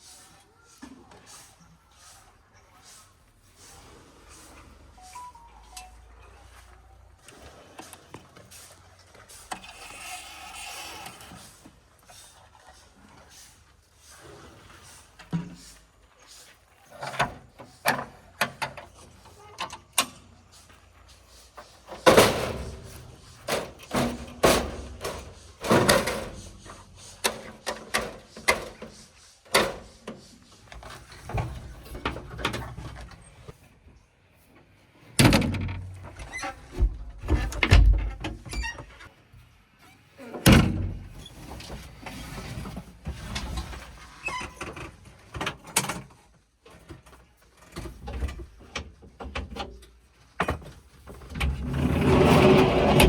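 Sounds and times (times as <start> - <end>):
heavy thuds and clanks: 35.2 - 38.5.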